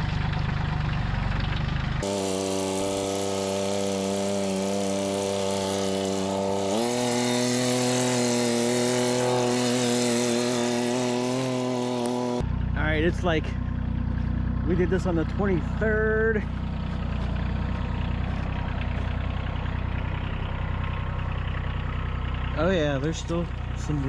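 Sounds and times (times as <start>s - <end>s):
motor running: 2.0s - 12.6s.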